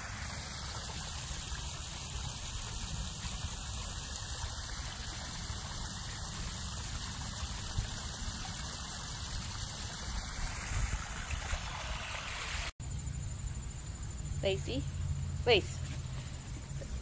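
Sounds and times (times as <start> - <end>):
small waterfall splashing: 0.0 - 12.8.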